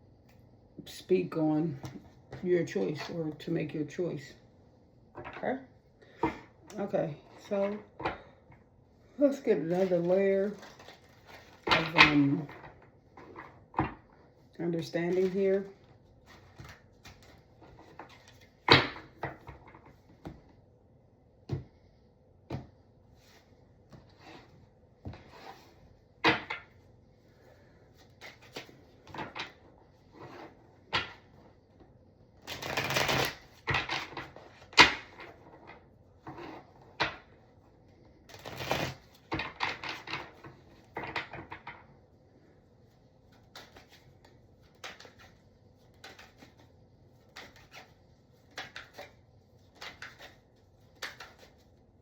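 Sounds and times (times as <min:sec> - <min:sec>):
cards shuffling: 0:32.5 - 0:35.2, 0:43.3 - 0:51.8
cards tapping and snapping: 0:43.4 - 0:45.3, 0:47.3 - 0:51.6.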